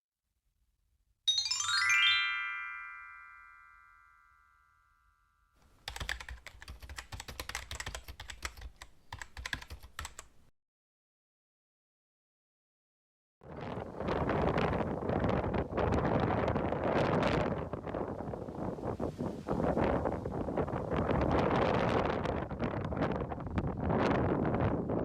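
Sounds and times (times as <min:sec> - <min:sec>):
rising bell-like chime arpeggio: 0:01.3 - 0:05.3
keyboard typing clicks: 0:05.8 - 0:10.5.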